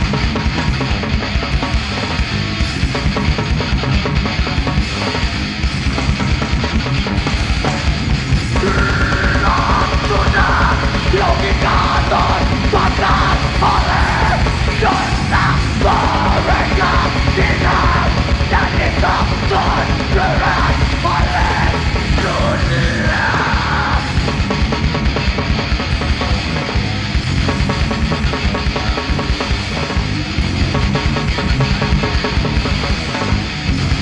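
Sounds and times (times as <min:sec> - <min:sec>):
heavy metal band playing: 0:00.0 - 0:34.0
harsh shouted vocals: 0:08.3 - 0:24.7.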